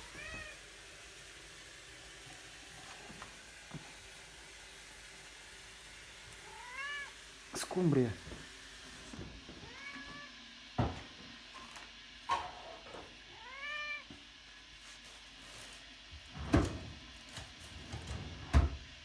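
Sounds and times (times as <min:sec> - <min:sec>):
cat meowing: 0:00.0 - 0:00.7, 0:06.4 - 0:07.2, 0:09.6 - 0:10.4, 0:13.3 - 0:14.1.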